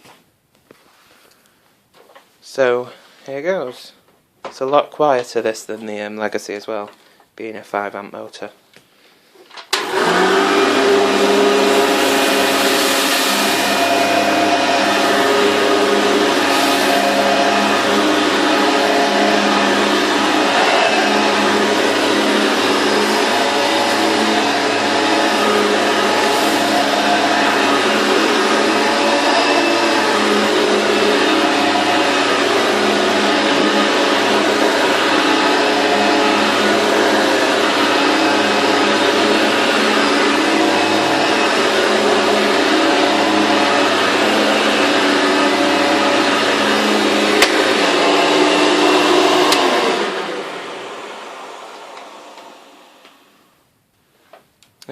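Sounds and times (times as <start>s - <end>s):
vacuum cleaner motor hum: 9.7s - 53.6s
airflow hiss: 10.8s - 53.6s.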